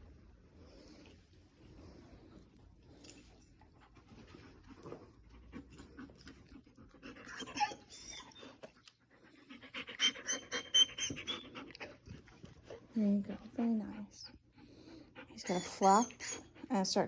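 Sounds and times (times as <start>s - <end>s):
dog panting: 3.6s - 17.0s.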